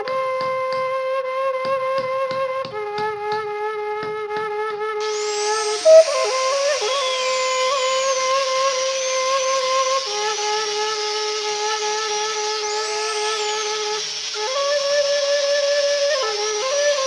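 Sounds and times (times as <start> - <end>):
flute music with long notes: 0.0 - 17.0
rotary carving tool grinding horn: 5.0 - 17.0.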